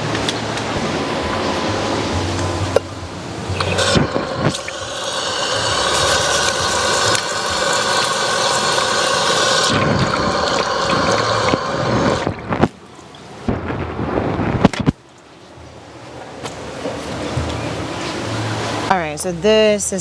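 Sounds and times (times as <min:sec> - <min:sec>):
water running from tap: 0:03.6 - 0:12.6.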